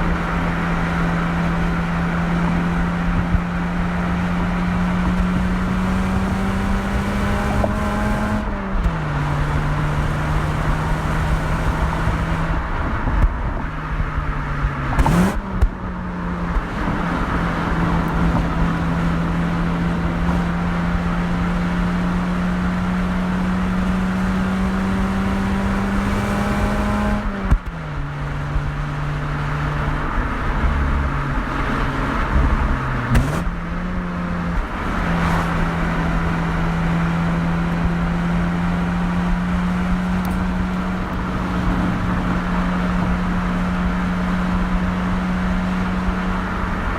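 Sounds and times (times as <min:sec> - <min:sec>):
car engine and exhaust: 0:00.0 - 0:46.9.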